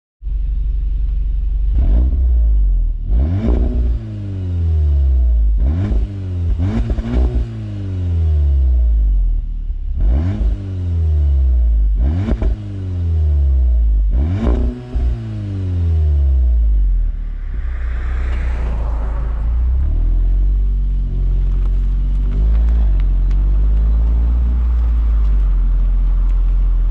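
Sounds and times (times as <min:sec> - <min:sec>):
car engine revving: 0:00.6 - 0:26.9
exhaust crackle: 0:13.4 - 0:26.9.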